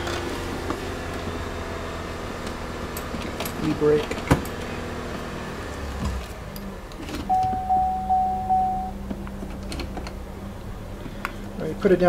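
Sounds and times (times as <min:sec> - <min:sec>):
car engine idling: 0:06.8 - 0:12.0
dashboard warning chime beeps: 0:07.3 - 0:09.0.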